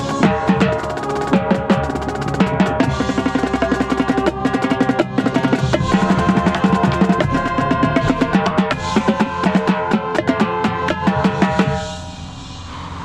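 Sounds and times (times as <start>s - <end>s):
sustained pitched ensemble tones: 0.0s - 13.0s
tenor drums rolls and strokes: 0.0s - 13.0s.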